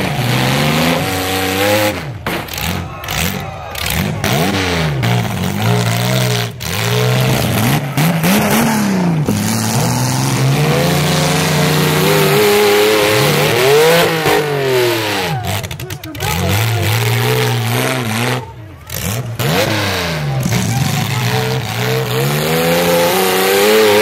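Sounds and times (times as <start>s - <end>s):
car engines revving hard: 0.0s - 24.0s.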